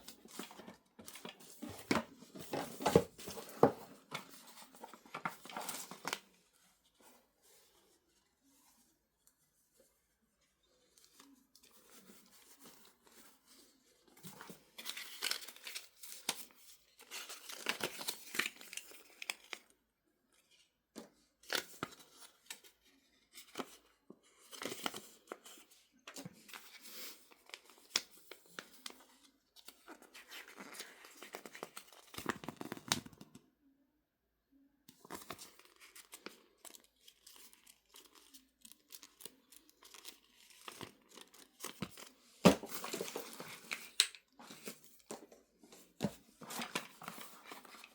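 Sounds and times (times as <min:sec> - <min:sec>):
plastic and paper crinkling: 0:00.0 - 0:07.8, 0:10.7 - 0:19.7, 0:35.0 - 0:47.9.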